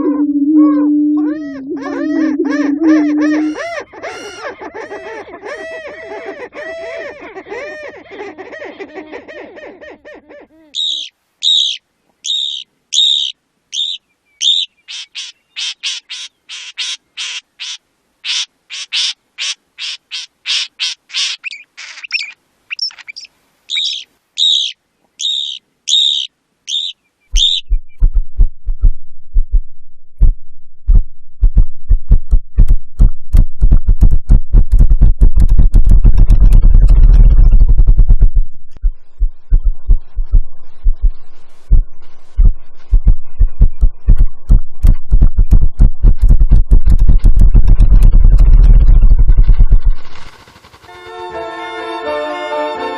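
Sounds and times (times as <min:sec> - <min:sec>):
bird calling high clear note: 0:00.0 - 0:04.5, 0:10.8 - 0:16.0, 0:20.5 - 0:27.7
low thumps into rumble: 0:27.4 - 0:50.3.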